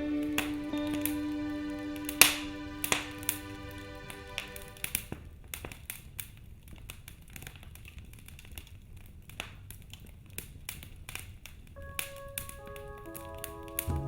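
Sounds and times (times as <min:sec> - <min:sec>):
lingering musical tones: 0:00.0 - 0:05.0, 0:11.8 - 0:14.0
wood fire crackling: 0:01.9 - 0:14.0.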